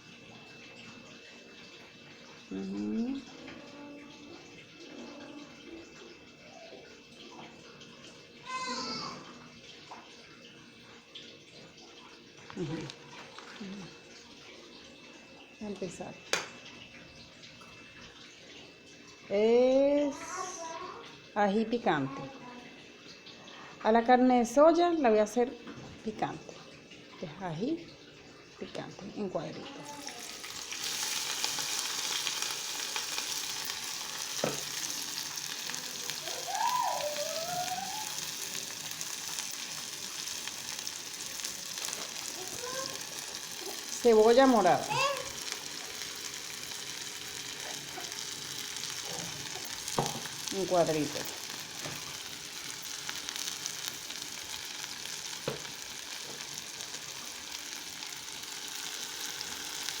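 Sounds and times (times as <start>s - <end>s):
chili sizzling in hot oil: 7.8s - 9.1s, 15.4s - 16.7s, 28.7s - 60.0s.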